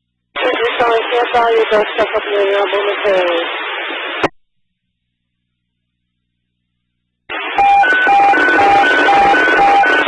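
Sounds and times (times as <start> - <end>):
radio static: 0.4 - 4.3.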